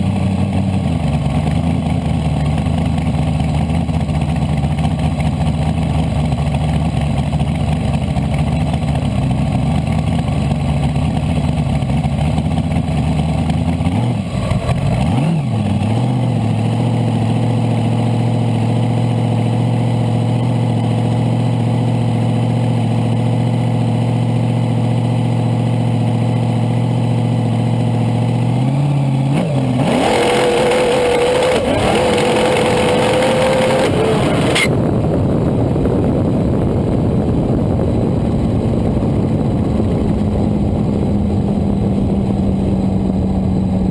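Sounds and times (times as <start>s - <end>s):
dragster engine revving: 0.0s - 18.1s, 27.7s - 43.9s.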